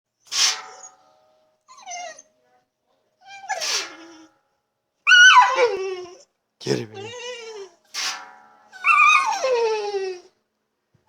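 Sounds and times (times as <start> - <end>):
dog whining: 1.7 - 2.3, 5.1 - 7.8, 8.8 - 10.3.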